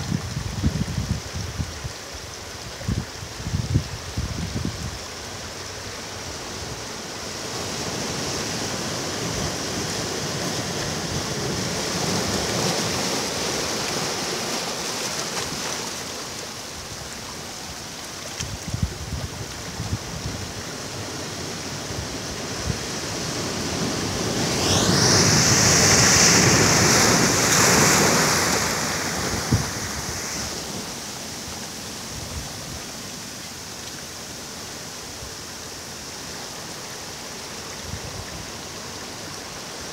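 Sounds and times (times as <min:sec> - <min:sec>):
ocean surf washing: 0:00.0 - 0:39.9
large wave breaking: 0:07.2 - 0:17.1, 0:20.4 - 0:33.4.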